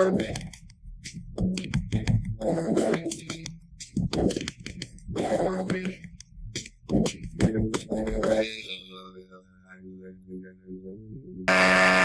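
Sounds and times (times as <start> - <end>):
muffled distorted man's voice: 0.0 - 0.6, 2.4 - 3.5, 5.1 - 6.1, 6.9 - 10.7.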